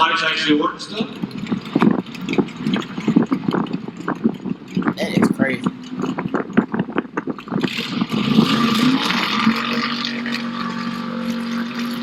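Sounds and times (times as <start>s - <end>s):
drag car engine revving: 7.6s - 12.0s.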